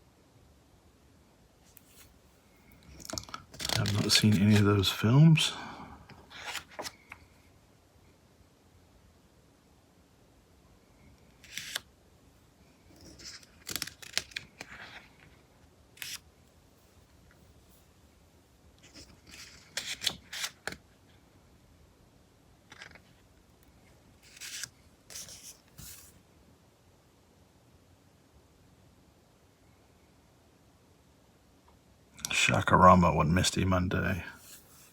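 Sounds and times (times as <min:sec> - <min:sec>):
magazine pages turning: 0:02.9 - 0:05.0, 0:06.3 - 0:07.2, 0:11.4 - 0:11.9, 0:13.0 - 0:15.3, 0:16.0 - 0:16.2, 0:18.8 - 0:20.8, 0:24.2 - 0:26.2.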